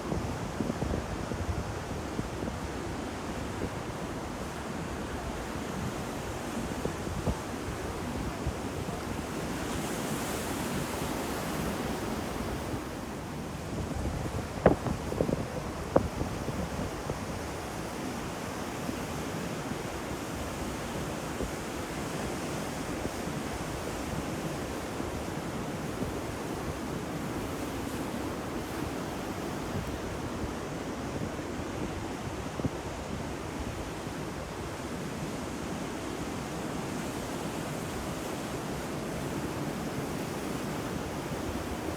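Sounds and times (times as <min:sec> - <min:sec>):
wind on microphone: 0:06.2 - 0:17.8.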